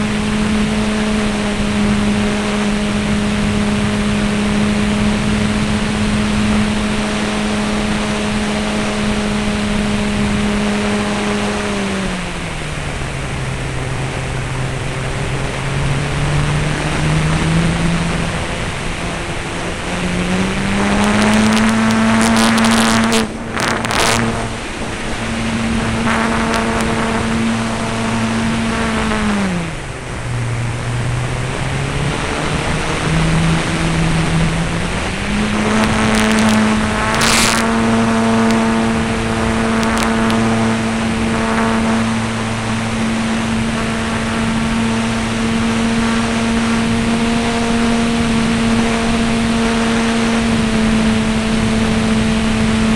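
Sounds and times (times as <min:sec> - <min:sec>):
model airplane motor and propeller: 0:00.0 - 0:52.9.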